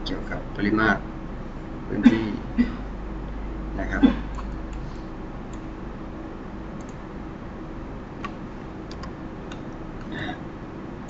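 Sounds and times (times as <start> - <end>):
low electrical hum: 0.0 - 11.0
computer mouse clicking: 6.8 - 7.0, 8.2 - 9.8.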